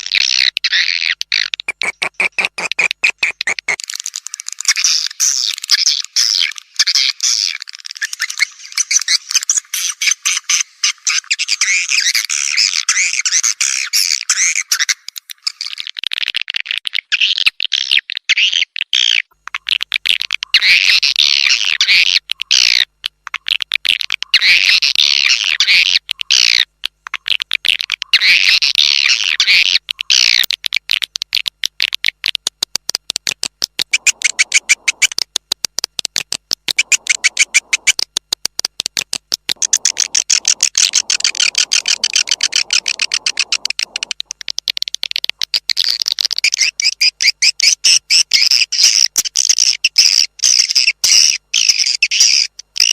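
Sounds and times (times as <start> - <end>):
rapid clicks: 29.8 - 46.5
swiftlet twittering chirps: 33.9 - 35.1, 36.8 - 38.0, 39.6 - 44.2.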